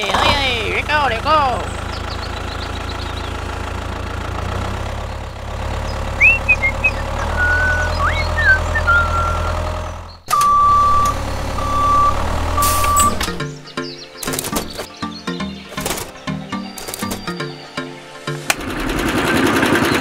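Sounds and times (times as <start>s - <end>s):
tractor engine running: 0.0s - 20.0s
bird chirps: 1.6s - 3.6s, 5.0s - 18.3s
reversing beep: 6.2s - 9.6s, 10.3s - 13.2s.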